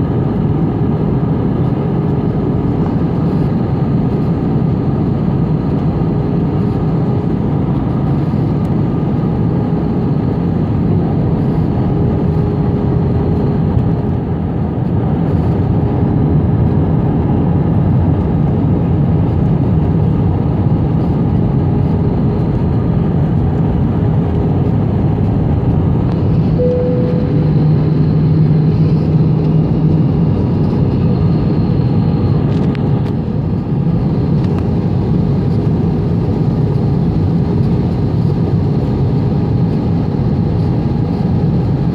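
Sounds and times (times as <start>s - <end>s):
jet cabin engine rush: 0.0s - 41.9s
faint whine tones: 25.7s - 38.0s
short hum: 26.1s - 29.6s.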